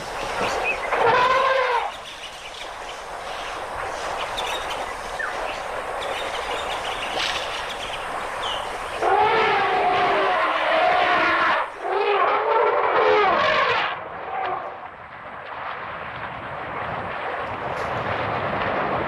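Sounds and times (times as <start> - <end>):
background hiss: 0.0 - 12.9
elephant trumpeting: 0.9 - 1.9, 9.0 - 14.6.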